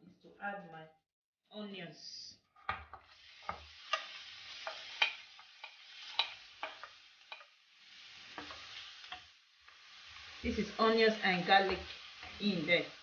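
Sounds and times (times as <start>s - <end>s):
onions sizzling in a frying pan: 2.8s - 13.0s.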